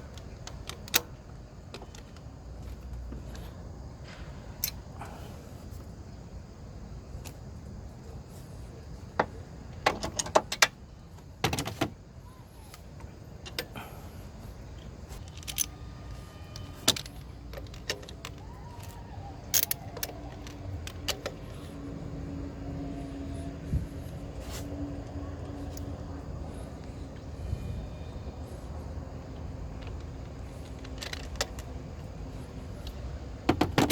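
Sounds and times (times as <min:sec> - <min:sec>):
metal tools clinking: 0:15.2 - 0:21.8.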